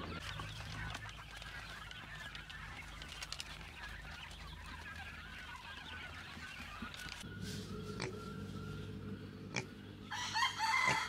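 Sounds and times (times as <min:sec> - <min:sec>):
poultry calling: 0:00.0 - 0:11.0
steady low hum: 0:07.2 - 0:10.4.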